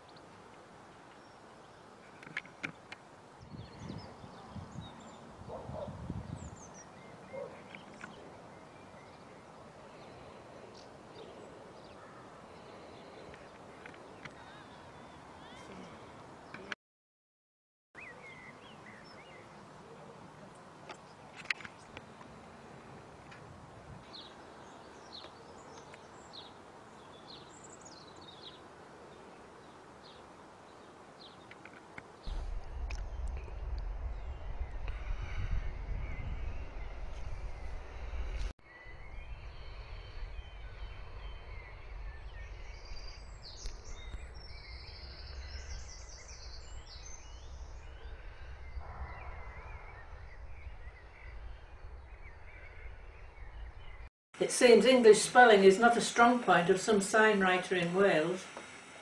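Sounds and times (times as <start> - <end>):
birds chirping: 0.0 - 16.8, 18.0 - 23.0, 24.0 - 59.0
low rumbling thumps: 32.2 - 54.1
steady background hiss: 54.4 - 59.0.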